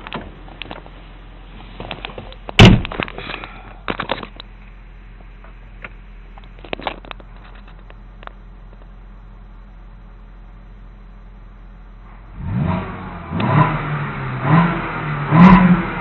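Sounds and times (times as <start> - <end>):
car engine idling: 0.0 - 16.0
loud sharp thump: 2.6 - 3.1.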